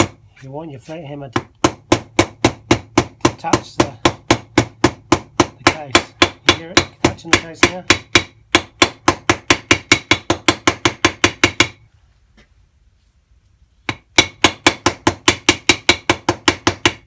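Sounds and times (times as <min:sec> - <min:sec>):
hammer tapping metal engine case: 0:00.0 - 0:00.2, 0:01.3 - 0:11.8, 0:13.9 - 0:17.0.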